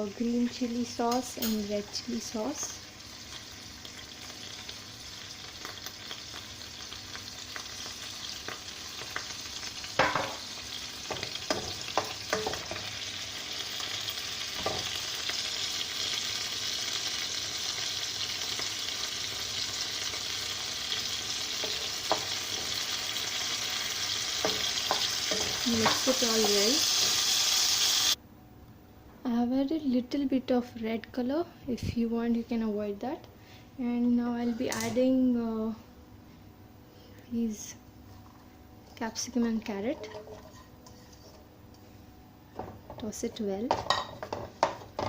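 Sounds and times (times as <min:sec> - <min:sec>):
food sizzling in a wok: 0:00.0 - 0:28.2
stirring knocks and scrapes: 0:39.9 - 0:41.5.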